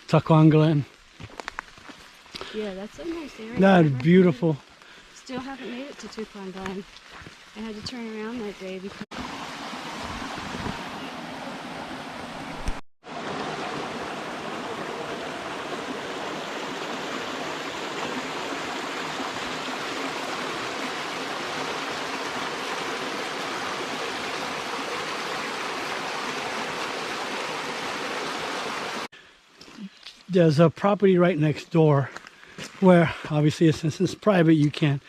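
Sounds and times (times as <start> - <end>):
stream water rushing: 2.4 - 29.1.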